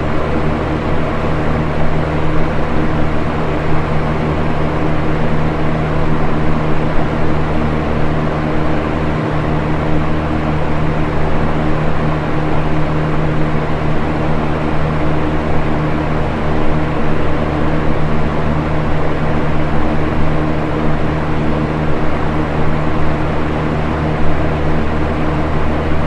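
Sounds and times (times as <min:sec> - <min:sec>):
electric box fan running: 0:00.0 - 0:26.0.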